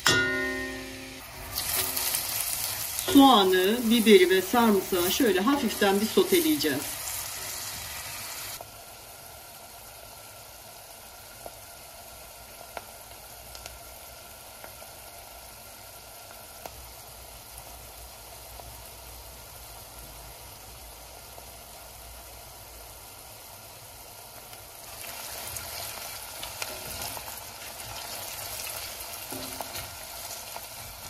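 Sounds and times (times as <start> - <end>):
cooking pops: 0.0 - 8.8, 11.2 - 18.8, 24.2 - 31.0
vegetables sizzling in a pan: 0.0 - 31.0.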